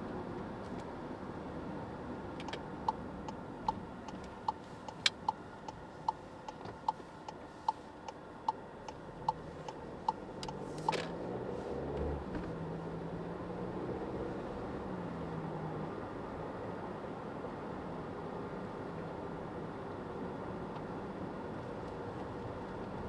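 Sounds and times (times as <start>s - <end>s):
car hum: 0.0s - 23.0s
turn signal ticking: 2.2s - 13.0s.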